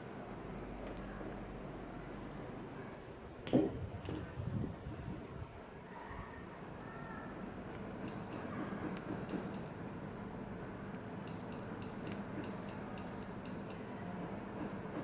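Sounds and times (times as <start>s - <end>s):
air conditioner short beeps: 8.0s - 10.0s, 11.2s - 14.1s.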